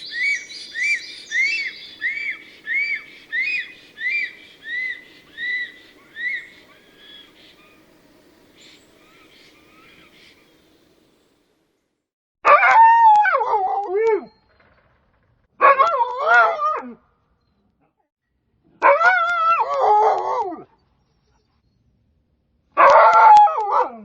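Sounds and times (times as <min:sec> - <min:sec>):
animal wavering cry: 0:00.1 - 0:07.3.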